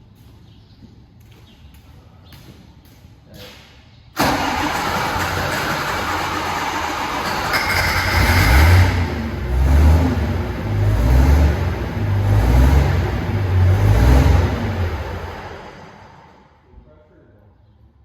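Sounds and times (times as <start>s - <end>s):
tractor engine revving: 4.2s - 16.5s.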